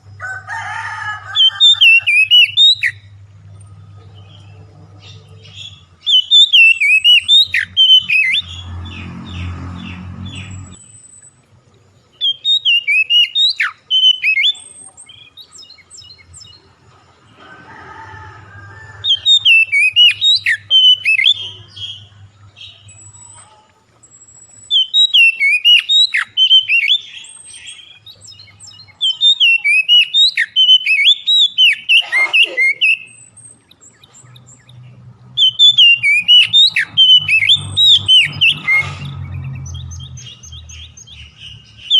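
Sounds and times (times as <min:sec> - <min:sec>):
songbird chirping and whistling: 0:01.3 - 0:03.2, 0:03.9 - 0:08.8, 0:12.1 - 0:16.8, 0:18.9 - 0:23.5, 0:24.1 - 0:34.8, 0:35.4 - 0:41.9.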